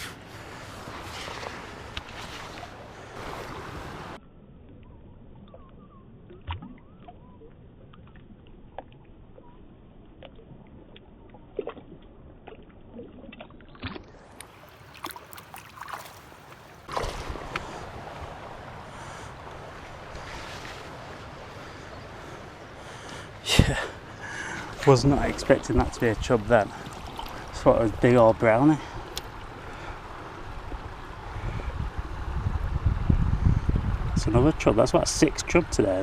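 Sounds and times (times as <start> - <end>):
river water splashing: 0.0 - 4.2, 8.0 - 32.4
wind on microphone: 30.4 - 34.8.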